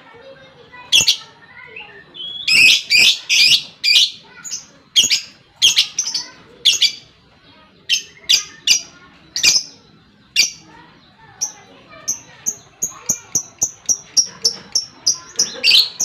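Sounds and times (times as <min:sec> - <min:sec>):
lovebird high-pitched calls: 0:00.8 - 0:07.2, 0:07.8 - 0:16.0.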